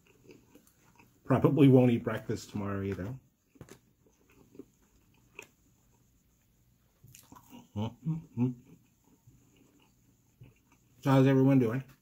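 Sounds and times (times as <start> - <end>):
person chewing: 0.0 - 1.2, 3.4 - 11.0.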